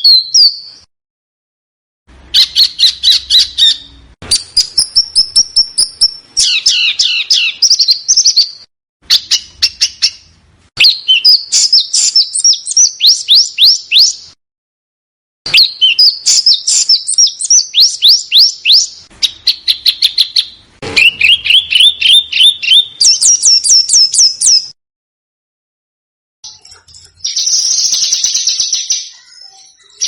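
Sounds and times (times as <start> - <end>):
songbird singing sharp chirps: 2.4 - 14.4, 15.5 - 24.8.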